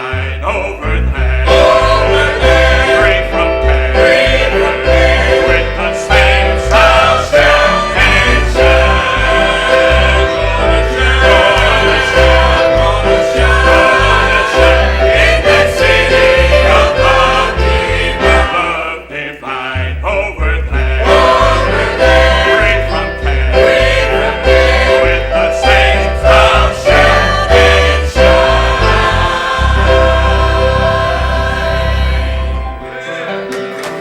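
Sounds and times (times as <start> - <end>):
gospel singing with accompaniment: 0.0 - 34.0
pulsing bass line: 19.8 - 32.7.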